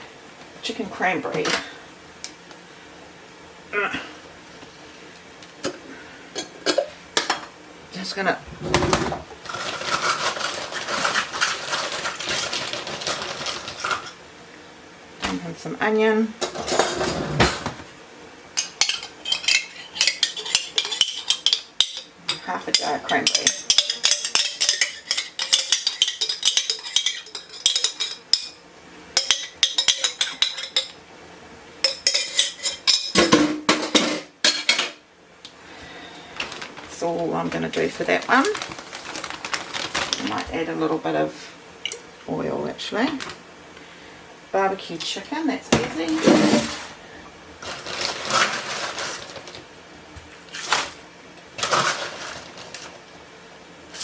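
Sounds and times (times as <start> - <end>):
freezer bag rustling: 8.5 - 14.1, 36.2 - 40.9, 47.6 - 49.6, 50.5 - 53.0.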